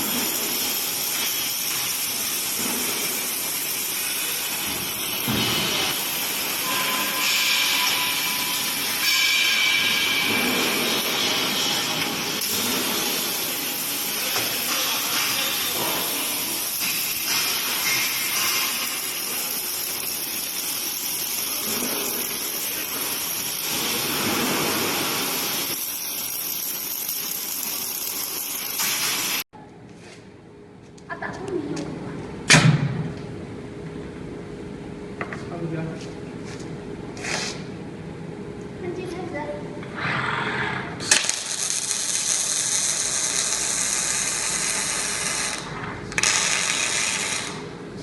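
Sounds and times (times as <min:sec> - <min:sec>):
welding arc hissing and crackling: 0:00.0 - 0:29.5, 0:41.0 - 0:48.0.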